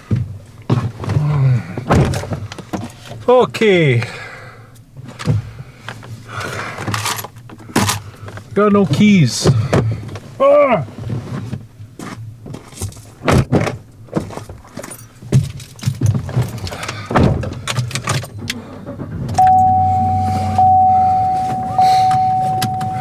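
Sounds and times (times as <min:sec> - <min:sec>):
clicks and knocks in a car: 0:00.0 - 0:03.3, 0:04.9 - 0:23.0
car electronic warning tone: 0:19.4 - 0:23.0.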